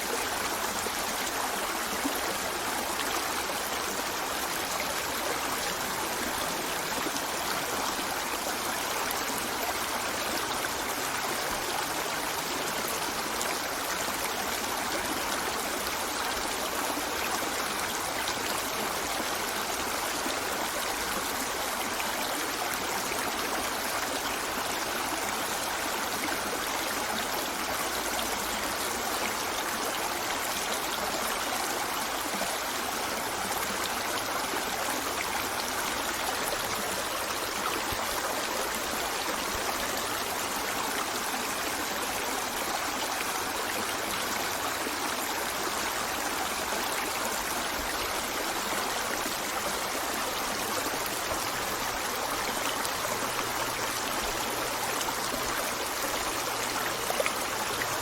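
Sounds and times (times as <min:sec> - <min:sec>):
river flowing over rocks: 0:00.0 - 0:58.0.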